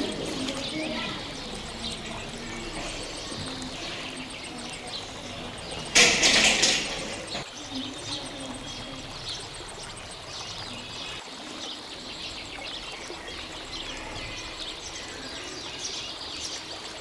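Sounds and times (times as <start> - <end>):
caged bird chirping: 0.0 - 11.2.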